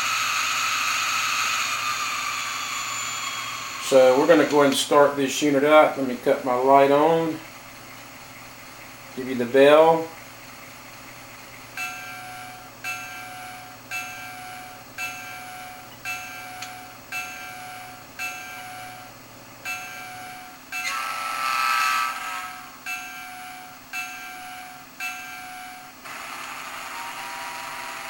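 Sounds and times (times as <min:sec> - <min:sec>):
locomotive bell ringing: 0:00.6 - 0:08.0, 0:09.1 - 0:10.5, 0:11.1 - 0:28.0
loud hissing surge: 0:01.0 - 0:09.9.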